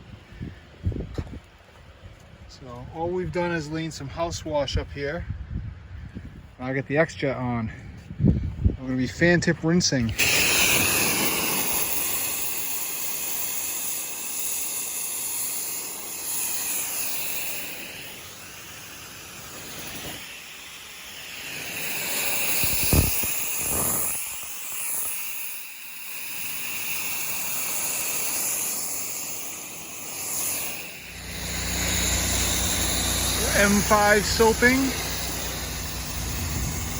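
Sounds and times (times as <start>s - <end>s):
pressure washer spraying water: 10.0s - 36.9s.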